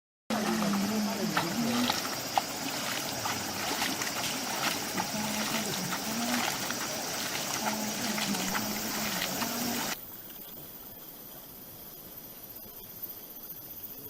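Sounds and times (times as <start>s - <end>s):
water rushing and splashing: 0.3s - 10.0s
steady hiss: 0.4s - 14.0s.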